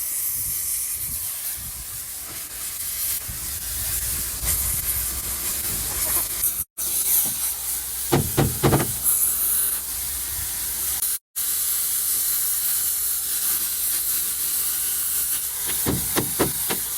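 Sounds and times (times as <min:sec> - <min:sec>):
cutting torch hissing: 0:00.0 - 0:16.9
loud knocks: 0:08.1 - 0:09.0, 0:15.7 - 0:16.9.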